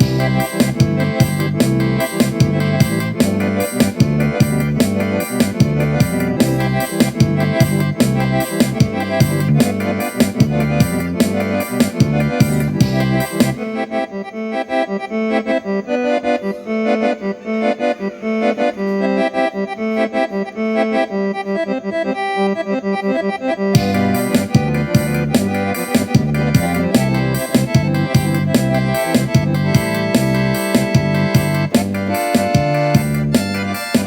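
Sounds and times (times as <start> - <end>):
steady drum beat: 0.0 - 13.6, 23.8 - 34.0
bass: 0.0 - 14.1, 21.6 - 34.0
accordion playing lively tune: 0.0 - 34.0.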